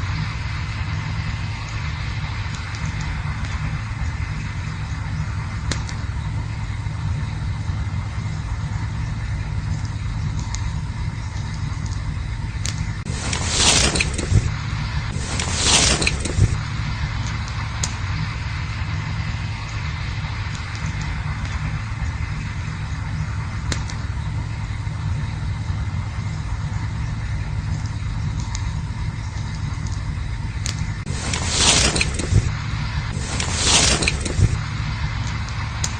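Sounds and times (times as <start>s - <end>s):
campfire burning: 0.0s - 35.9s
fire crackles: 0.0s - 35.9s
burning wood popping: 0.5s - 35.9s
loud hiss: 13.1s - 26.0s, 31.0s - 35.9s.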